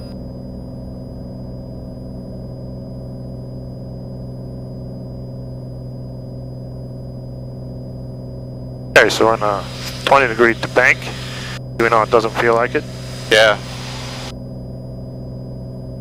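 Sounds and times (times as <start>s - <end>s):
faint high whine: 9.0s - 14.8s
propeller plane engine droning: 9.0s - 15.0s.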